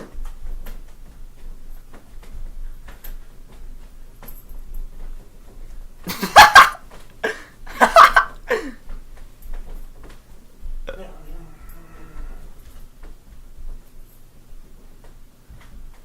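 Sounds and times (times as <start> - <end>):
loud vocal outbursts: 10.9 - 12.6.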